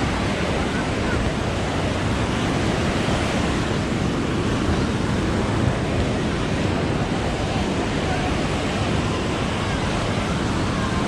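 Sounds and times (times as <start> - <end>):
ocean surf on beach: 0.0 - 11.0.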